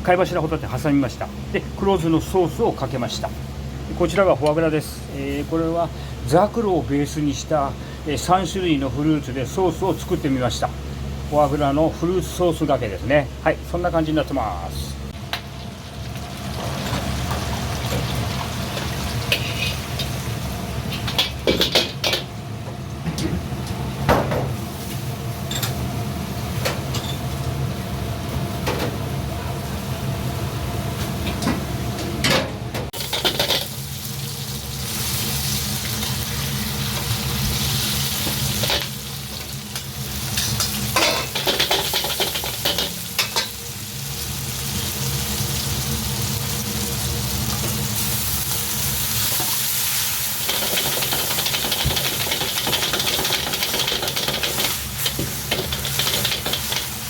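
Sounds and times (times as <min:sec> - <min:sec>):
low kitchen hum: 0:00.0 - 0:57.0
food sizzling in a wok: 0:15.4 - 0:22.1, 0:33.0 - 0:57.0
metal ladle scraping wok: 0:19.3 - 0:20.0.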